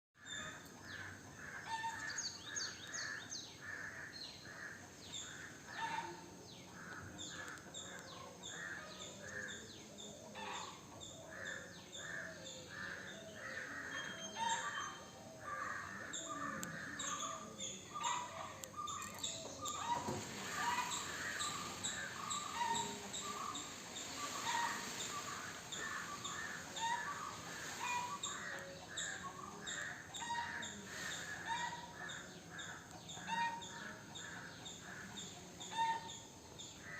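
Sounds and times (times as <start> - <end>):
small birds chirping: 7.0 - 36.8
rustling: 19.0 - 28.8.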